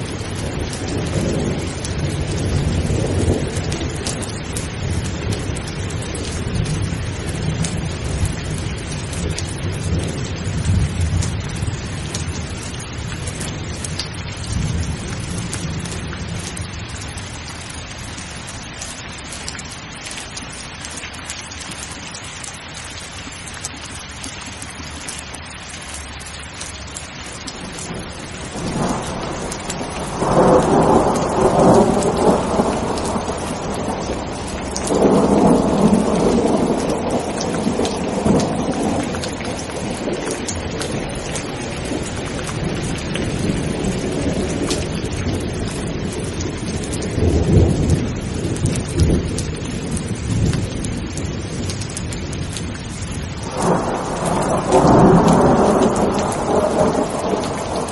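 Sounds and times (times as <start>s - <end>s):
thunder rumbling: 0.0s - 17.8s, 27.4s - 57.9s
rain pouring: 0.0s - 57.9s
thunder crashing: 28.5s - 39.0s, 53.4s - 57.9s.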